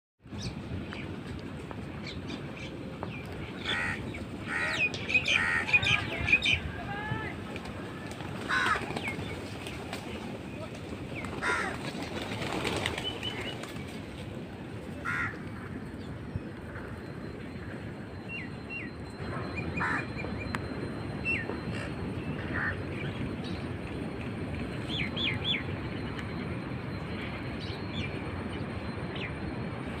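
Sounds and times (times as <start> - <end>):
birds chirping and squawking: 2.2 - 6.8, 8.0 - 9.9, 11.2 - 13.9, 18.8 - 23.8.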